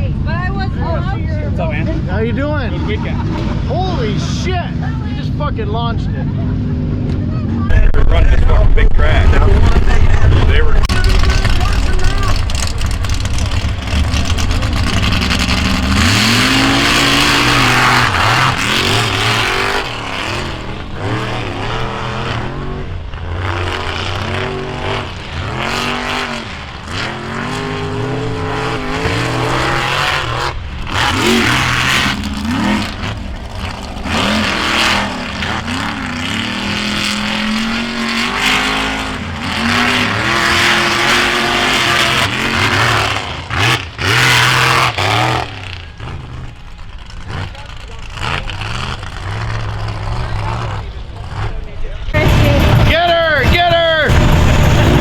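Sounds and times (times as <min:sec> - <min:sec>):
truck engines revving: 0:00.0 - 0:55.0
steady wash of noise: 0:07.7 - 0:12.5.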